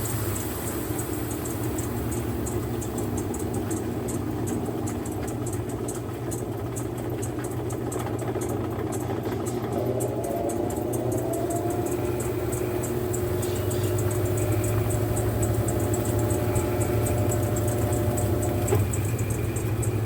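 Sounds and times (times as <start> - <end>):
washing machine motor hum: 0.0 - 20.0
rapid faint ticking: 0.4 - 20.0
rising whine: 9.5 - 20.0.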